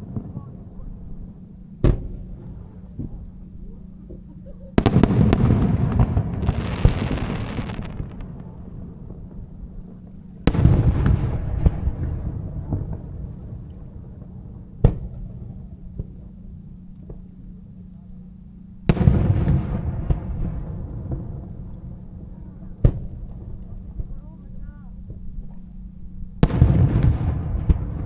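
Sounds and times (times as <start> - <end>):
firework booms: 1.8 - 3.2, 4.1 - 16.3, 18.8 - 24.1, 26.4 - 28.0
firework crackling: 4.8 - 9.6.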